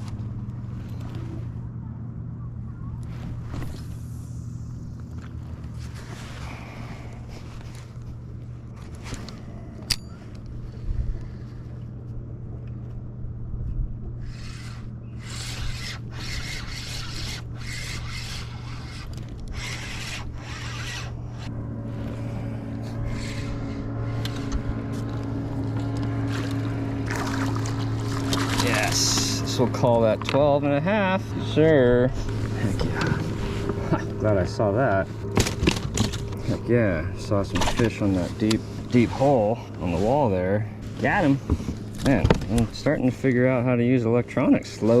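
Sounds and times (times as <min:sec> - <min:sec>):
boat motor humming: 0:00.0 - 0:45.0
splashing and scraping: 0:14.6 - 0:30.3.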